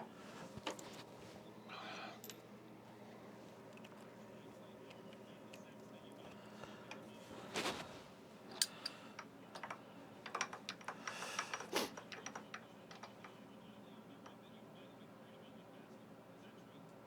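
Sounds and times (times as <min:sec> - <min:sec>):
light clicks and taps: 0:08.5 - 0:13.4.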